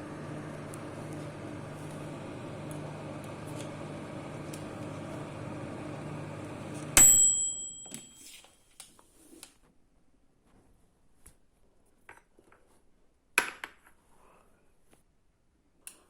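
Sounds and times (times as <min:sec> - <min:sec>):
microwave oven humming: 0:00.0 - 0:07.7
microwave beep: 0:00.0 - 0:08.2.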